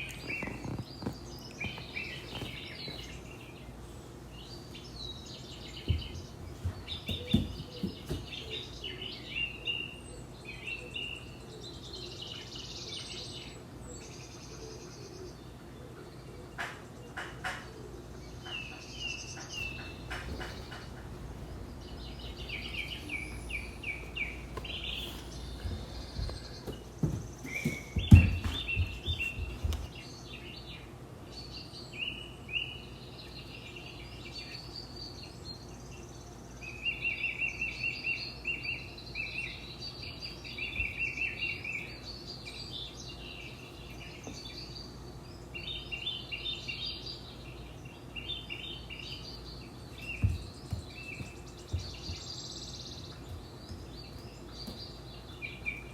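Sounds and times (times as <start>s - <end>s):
small birds chirping: 0.0s - 55.9s
knocks: 19.6s - 21.5s.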